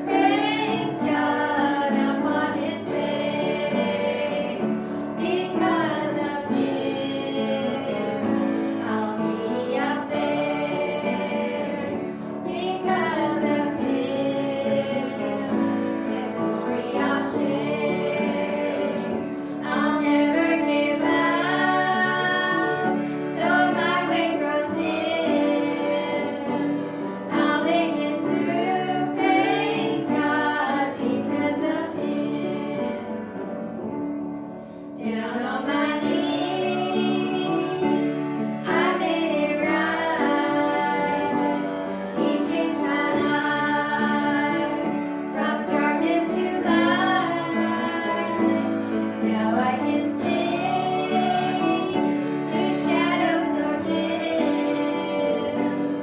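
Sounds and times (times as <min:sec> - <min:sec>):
group singing gospel song: 0:00.0 - 0:34.0, 0:34.7 - 0:56.0
musical accompaniment: 0:00.0 - 0:56.0.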